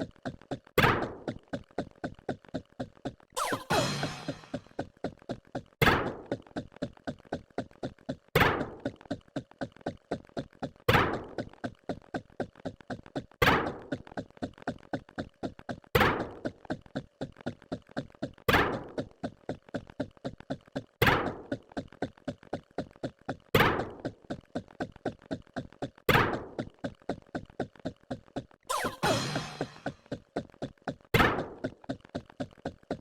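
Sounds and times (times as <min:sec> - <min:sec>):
louder rhythmic thump: 0:03.4 - 0:04.7, 0:28.7 - 0:30.0.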